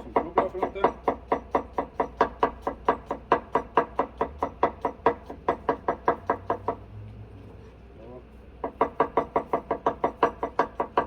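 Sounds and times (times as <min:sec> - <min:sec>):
knife chopping on cutting board: 0:00.0 - 0:06.8.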